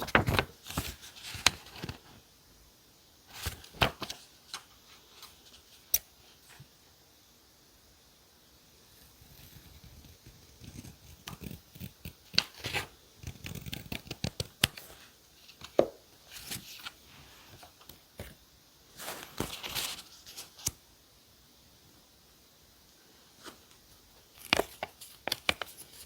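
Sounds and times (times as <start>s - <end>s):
paper rustling: 0.0s - 2.2s, 3.3s - 5.8s, 12.3s - 17.8s, 18.9s - 20.7s.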